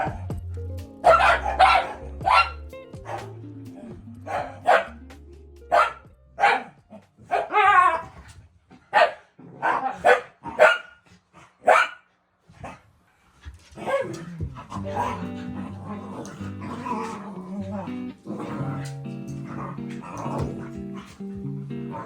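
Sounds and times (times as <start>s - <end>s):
dog barking: 0.0s - 0.3s, 1.0s - 3.3s, 4.2s - 5.0s, 5.7s - 8.1s, 8.8s - 11.0s, 11.6s - 12.8s, 13.8s - 14.2s, 14.8s - 15.6s
dog yowling: 1.0s - 3.3s, 4.3s - 5.0s, 7.3s - 8.2s, 13.8s - 21.2s.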